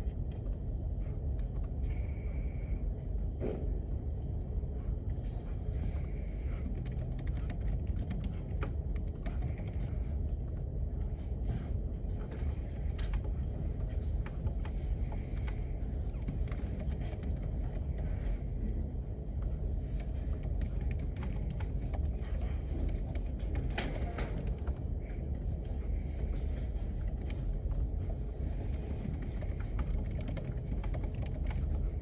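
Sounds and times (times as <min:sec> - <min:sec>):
room ventilation hum: 0:00.0 - 0:32.0
keyboard typing clicks: 0:06.6 - 0:10.7, 0:20.0 - 0:24.9, 0:28.7 - 0:31.9.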